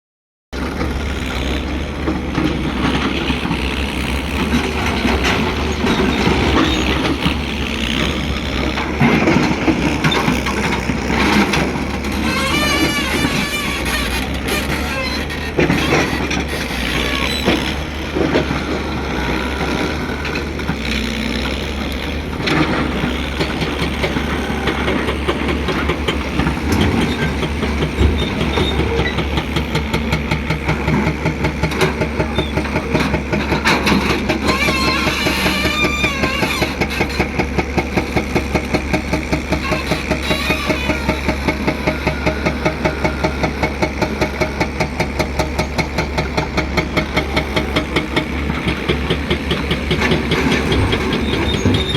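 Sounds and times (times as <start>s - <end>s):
heavy diesel engine running: 0.6s - 51.9s
knocks and clatter: 22.0s - 51.9s.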